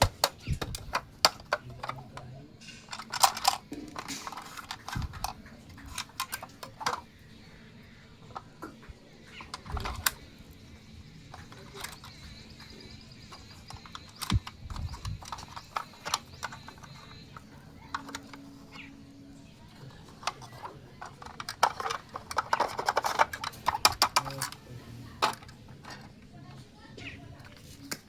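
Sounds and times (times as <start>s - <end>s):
plastic toy pieces clicking: 0.0s - 7.4s, 8.3s - 18.8s, 19.7s - 26.3s.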